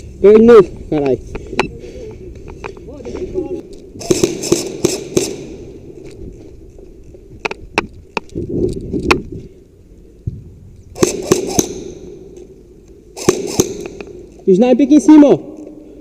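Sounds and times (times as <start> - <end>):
airsoft guns firing: 4.0 - 6.0, 10.9 - 12.4, 13.1 - 14.4.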